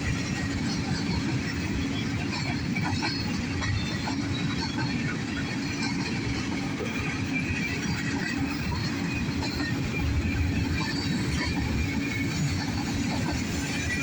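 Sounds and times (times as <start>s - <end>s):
freight train rolling past: 0.0s - 14.0s.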